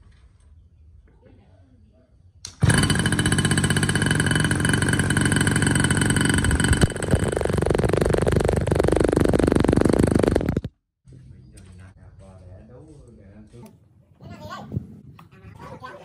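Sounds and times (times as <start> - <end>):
small two-stroke motorbike engine: 2.5 - 10.8.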